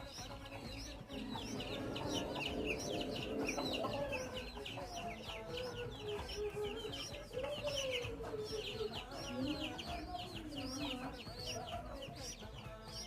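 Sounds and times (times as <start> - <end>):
baby birds peeping: 0.0 - 13.0
low clucking calls: 0.0 - 13.0.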